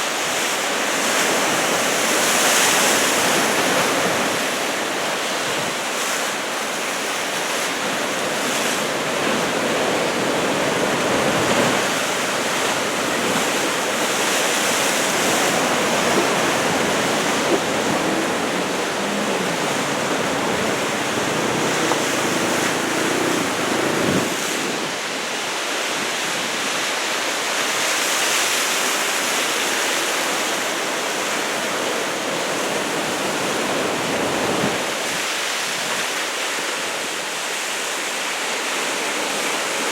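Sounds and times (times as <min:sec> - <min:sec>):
ocean surf breaking: 0:00.0 - 0:39.9
wind on microphone: 0:07.2 - 0:25.2.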